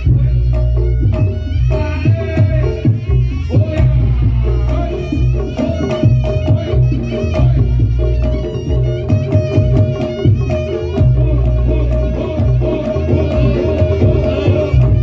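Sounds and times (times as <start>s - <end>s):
hand drums and gongs: 0.0s - 15.0s
reedy pipe melody: 0.0s - 15.0s.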